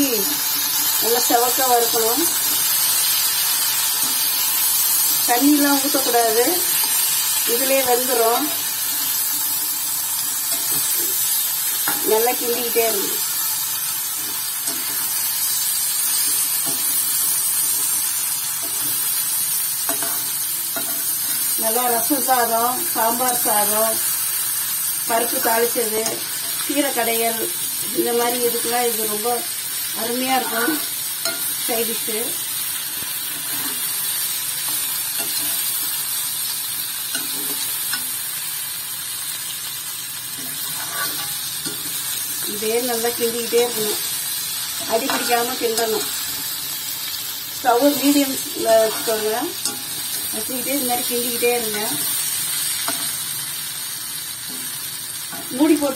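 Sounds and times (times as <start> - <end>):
slices sizzling in hot oil: 0.0 - 55.9
spatula scraping a pan: 33.1 - 36.0, 40.4 - 42.5, 43.5 - 46.6, 47.8 - 50.4
spatula stirring: 40.4 - 42.4, 44.8 - 46.5.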